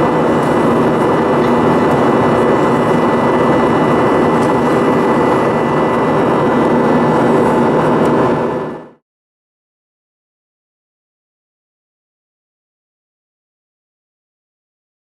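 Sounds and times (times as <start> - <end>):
jet engine cabin noise: 0.0 - 9.0
thin steady whine: 0.0 - 9.0.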